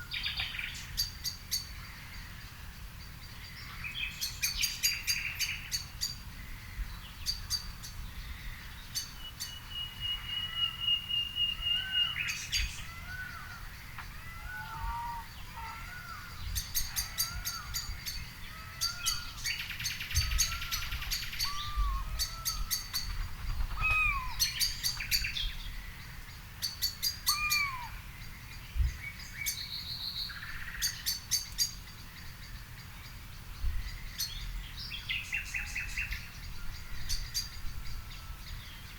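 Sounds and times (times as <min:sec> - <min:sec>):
birds chirping: 0:00.0 - 0:38.9
bird trill: 0:03.3 - 0:32.7
bird whistle: 0:09.4 - 0:12.4, 0:23.8 - 0:25.4, 0:26.8 - 0:28.0.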